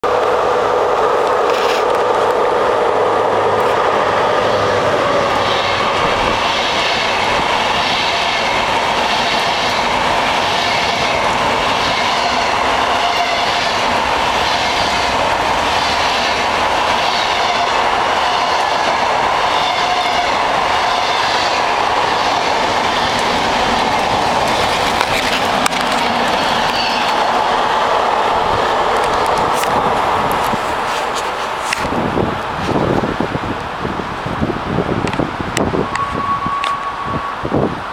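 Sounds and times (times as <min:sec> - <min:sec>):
train wheels clacking on rail joints: 0:03.6 - 0:27.6.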